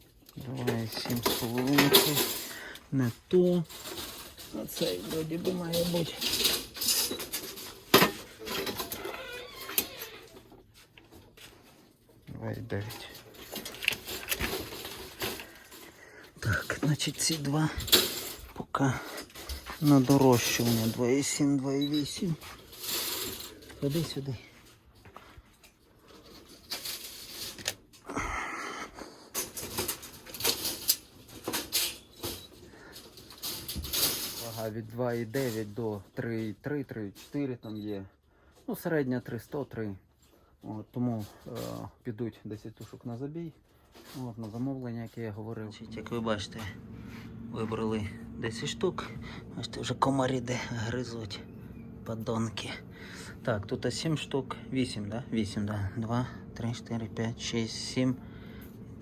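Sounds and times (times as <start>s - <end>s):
metallic clatter and rustling: 0.0s - 28.0s, 29.2s - 37.4s.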